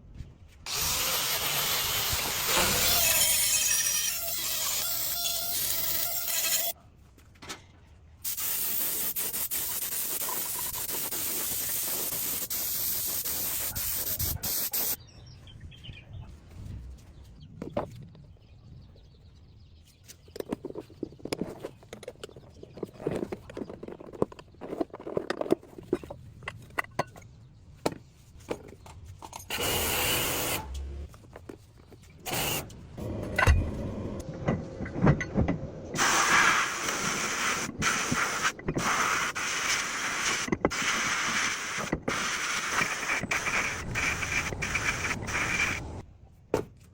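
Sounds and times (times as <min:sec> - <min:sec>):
spray hissing: 0:08.3 - 0:15.0, 0:36.0 - 0:46.0
parts scraping and clicking: 0:20.0 - 0:36.0.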